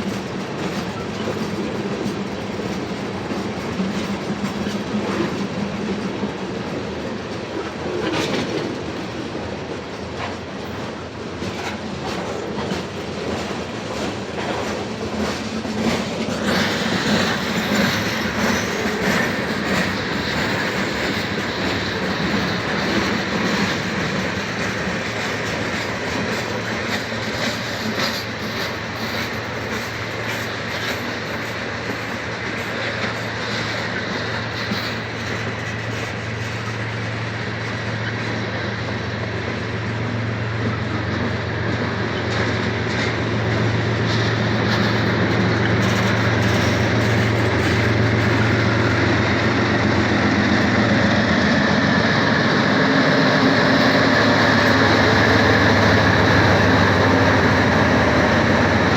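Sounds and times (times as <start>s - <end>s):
freight train rumble: 0.0s - 58.9s
wheels clicking on rails: 0.0s - 58.9s.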